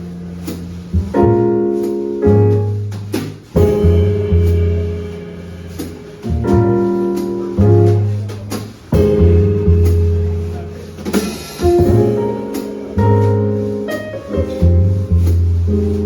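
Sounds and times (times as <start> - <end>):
deep bass notes: 0.0 - 16.0
piano chords: 0.0 - 16.0
light cymbal hits: 2.9 - 15.6.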